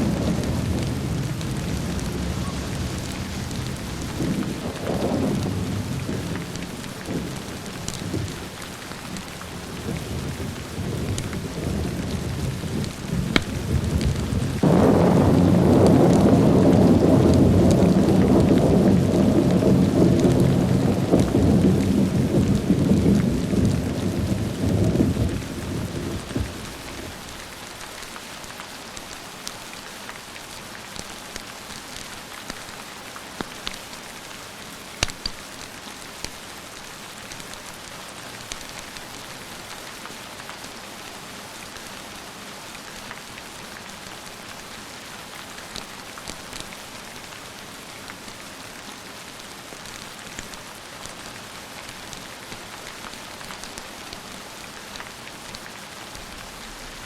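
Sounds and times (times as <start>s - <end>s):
thunder rumble: 0.0s - 8.6s, 9.2s - 27.4s
steady rain: 0.0s - 57.0s
sharp ticks and pops: 13.3s - 13.6s, 35.0s - 35.4s.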